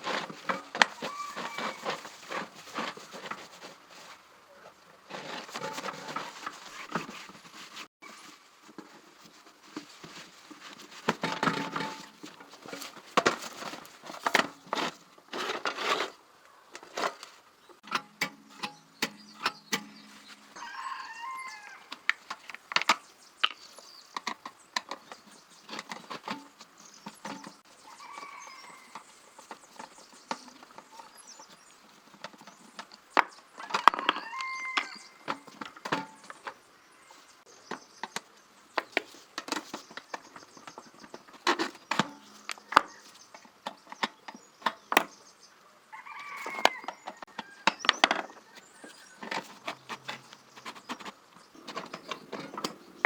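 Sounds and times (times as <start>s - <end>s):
hand tools clicking and tapping: 16.8s - 20.5s, 21.9s - 31.1s, 37.6s - 45.1s, 48.9s - 53.0s.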